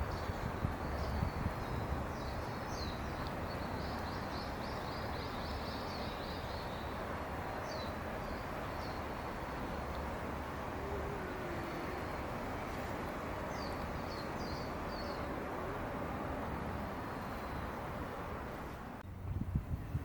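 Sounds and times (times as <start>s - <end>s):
outdoor background noise: 0.0s - 20.0s
small birds chirping: 13.5s - 15.4s.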